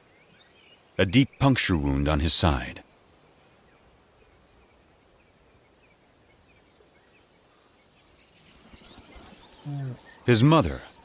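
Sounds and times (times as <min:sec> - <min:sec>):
faint bird chirps: 0:03.2 - 0:11.0.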